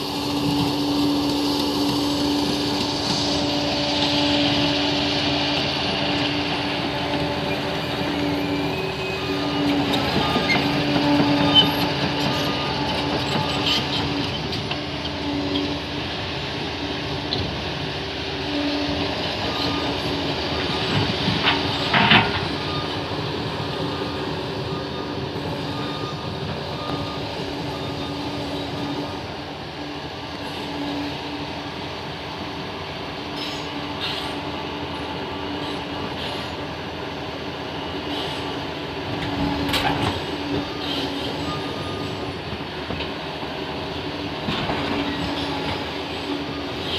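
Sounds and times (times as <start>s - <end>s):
tracks and blade grinding: 0.0s - 17.2s, 33.2s - 37.1s, 37.9s - 46.9s
bulldozer diesel engine droning: 0.0s - 46.9s.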